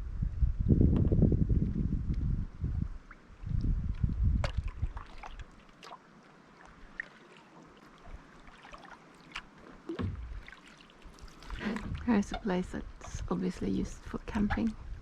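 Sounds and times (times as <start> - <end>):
water dripping and splashing: 3.1 - 15.0
water trickling: 3.1 - 15.0
paddle pulling through water: 4.0 - 15.0.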